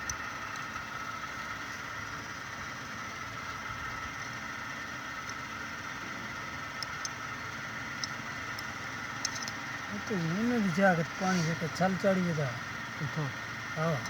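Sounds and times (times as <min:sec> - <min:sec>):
electric water pump humming: 0:00.0 - 0:14.0
faint ticks: 0:06.7 - 0:07.2, 0:07.9 - 0:09.6.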